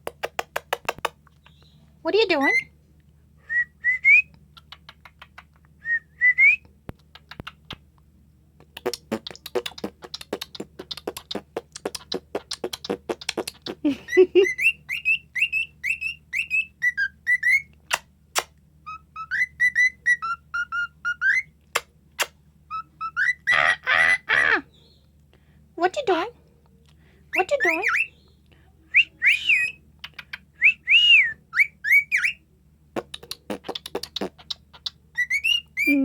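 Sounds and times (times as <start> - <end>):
cockatiel clicking chatter: 4.6 - 5.7, 6.9 - 7.8, 8.6 - 13.8, 33.0 - 35.5
cockatiel whistling: 14.4 - 17.7, 18.8 - 21.5, 22.7 - 23.6, 30.6 - 32.4, 35.1 - 36.0.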